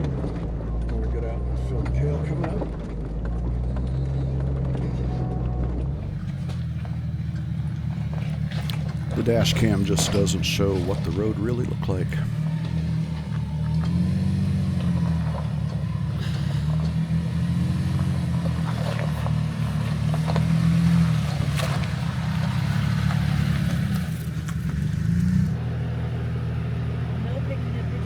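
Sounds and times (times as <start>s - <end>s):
off-road vehicle engine revving: 0.0s - 28.0s
vehicle knocking and rattling on rocks: 5.9s - 25.5s.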